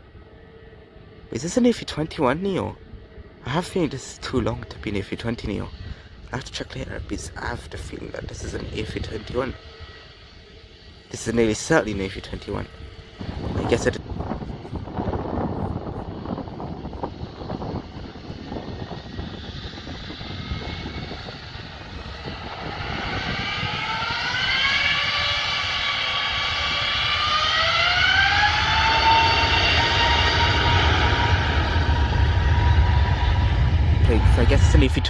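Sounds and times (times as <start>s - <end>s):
jet engines spooling up: 0.0s - 35.0s
low rumble: 0.0s - 35.0s.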